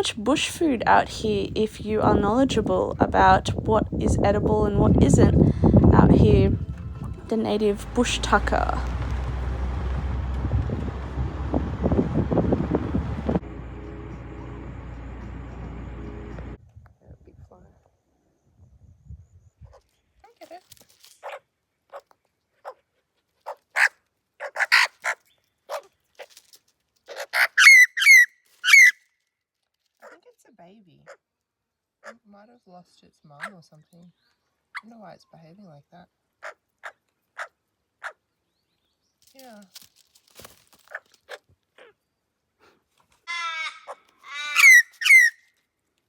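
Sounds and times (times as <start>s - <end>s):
young bird harsh calls: 23.7s - 25.9s, 27.1s - 29.0s, 43.3s - 45.4s
bird whistled calls sliding down: 44.6s - 45.4s.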